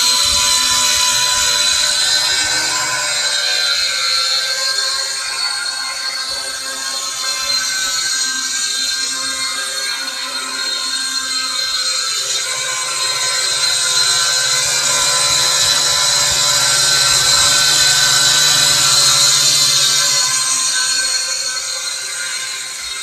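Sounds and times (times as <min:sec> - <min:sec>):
quadcopter motors whining: 0:00.0 - 0:23.0.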